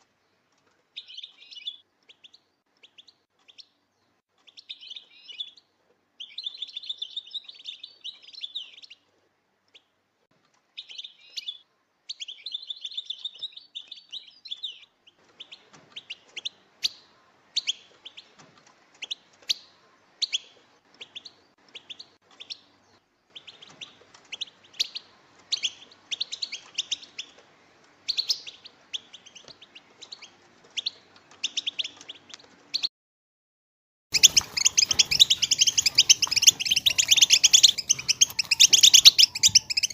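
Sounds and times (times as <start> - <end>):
finches twittering: 34.2 - 39.9.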